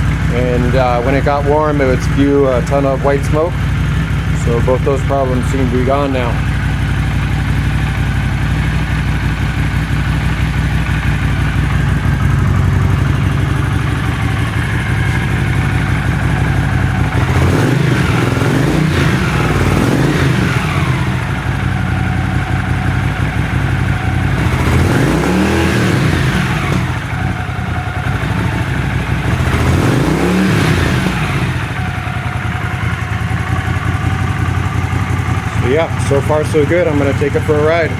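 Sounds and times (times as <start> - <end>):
engine revving: 0.0 - 37.9
motorcycle engine idling: 0.0 - 37.9.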